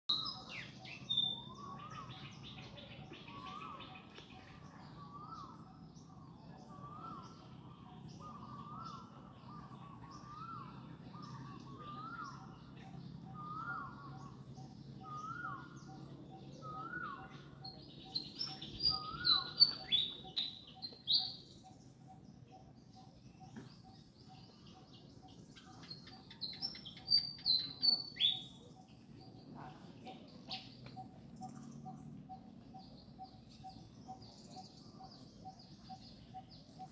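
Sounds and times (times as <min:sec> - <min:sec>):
high bird chirping: 0:11.2 - 0:22.2.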